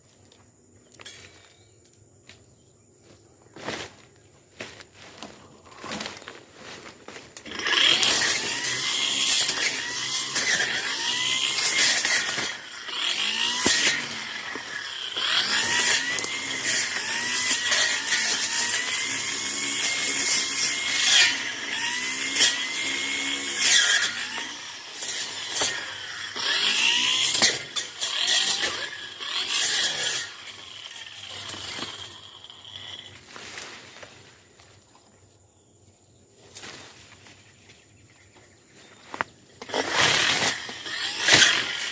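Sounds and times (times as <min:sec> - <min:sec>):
footsteps on vegetation: 0:03.0 - 0:07.5, 0:33.1 - 0:35.2, 0:36.4 - 0:39.6
brush cutter engine revving: 0:05.1 - 0:34.4, 0:39.0 - 0:41.9.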